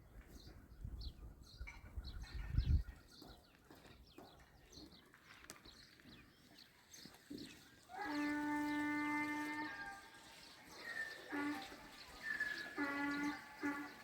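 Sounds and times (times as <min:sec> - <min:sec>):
farm animal call: 0:07.8 - 0:14.0
faint bird chirps: 0:10.7 - 0:13.9.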